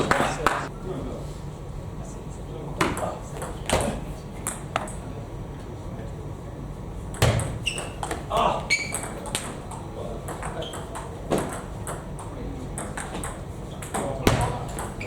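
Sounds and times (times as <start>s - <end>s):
voices chattering: 0.0s - 1.3s
shoe squeaks on floor: 7.4s - 9.2s, 10.6s - 11.0s.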